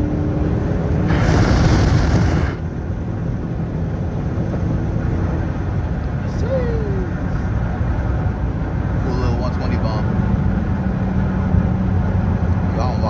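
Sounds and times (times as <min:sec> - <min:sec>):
rush of exhaust: 0:00.9 - 0:02.7
car exhaust rumbling: 0:01.0 - 0:02.7.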